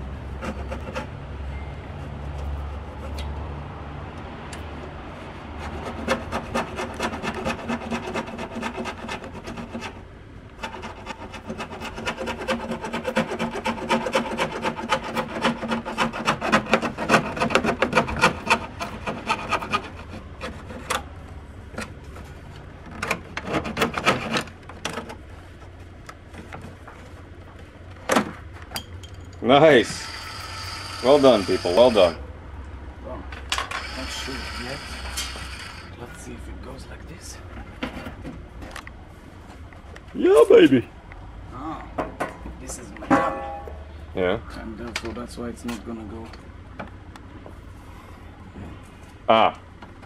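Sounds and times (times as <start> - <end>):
handsaw sawing wood: 0.3 - 1.1, 5.2 - 20.9, 29.8 - 32.2, 33.8 - 36.1.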